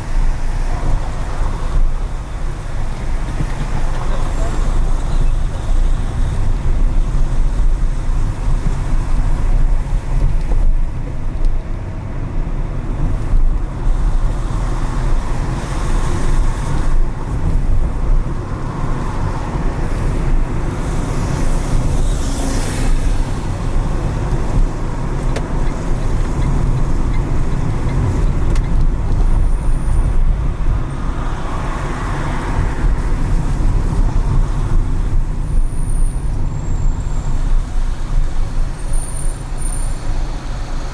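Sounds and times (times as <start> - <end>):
car and tyres rumbling: 0.0 - 40.9
vehicle passing on wet road: 20.8 - 24.8.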